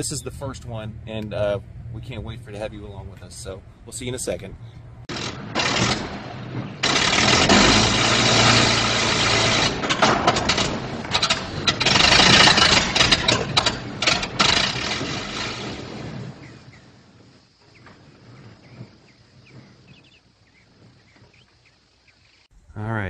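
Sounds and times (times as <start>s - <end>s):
car engine running unevenly: 5.1s - 16.2s
engine sputtering: 5.1s - 17.0s.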